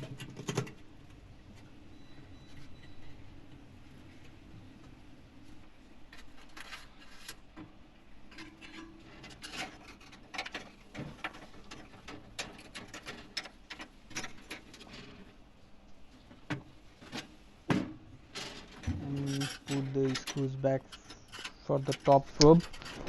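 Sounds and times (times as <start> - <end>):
metal oven parts clicking: 18.4 - 23.0.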